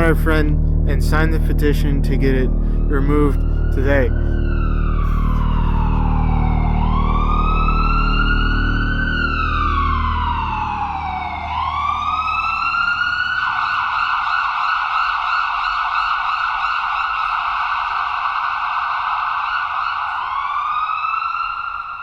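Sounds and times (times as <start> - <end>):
low hum: 0.0 - 14.1
siren wailing and yelping: 2.3 - 22.0.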